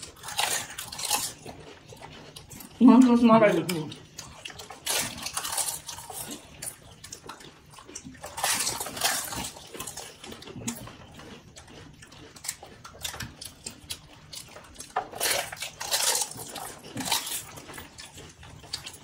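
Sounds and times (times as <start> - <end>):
crisp shells crunching: 0.0 - 1.5, 4.3 - 7.2, 8.1 - 10.8, 14.8 - 18.9
water sloshing and slurping: 0.0 - 19.0.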